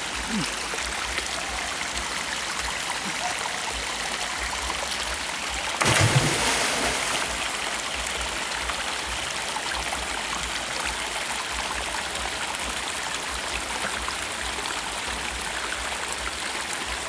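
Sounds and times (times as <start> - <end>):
waterfall rushing: 5.8 - 7.6
loud splash: 5.8 - 7.7.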